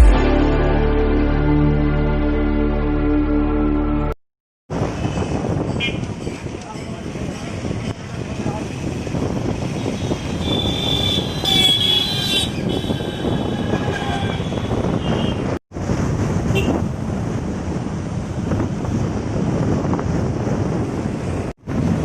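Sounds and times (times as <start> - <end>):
road noise: 4.7 - 22.0
wind buffeting microphone: 4.7 - 22.0.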